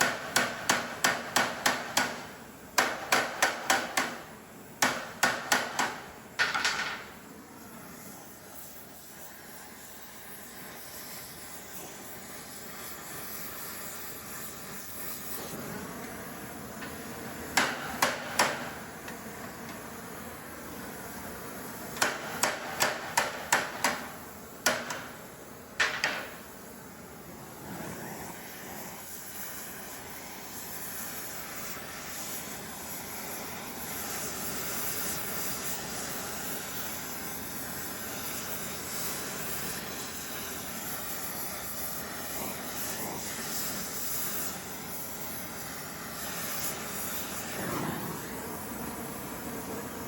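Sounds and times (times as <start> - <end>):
hammer striking metal on anvil: 0.0 - 2.2, 17.6 - 18.8, 22.0 - 25.1.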